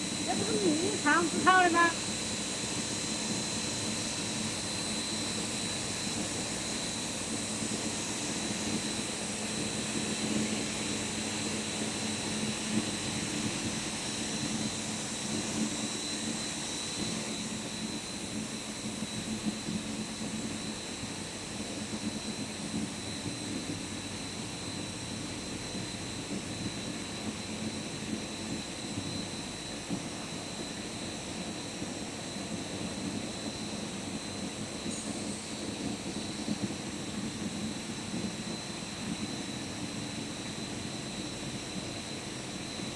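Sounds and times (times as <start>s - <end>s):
machinery humming: 0.0s - 2.0s.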